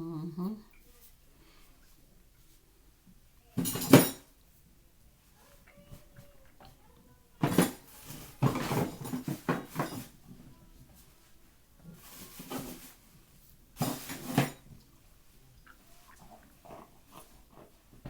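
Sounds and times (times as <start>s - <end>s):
crackly rustling of cornstarch: 10.5s - 13.8s.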